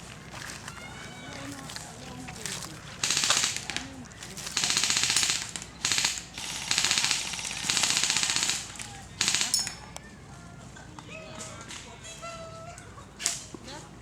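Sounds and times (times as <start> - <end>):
airsoft guns firing bursts: 1.5 - 9.9.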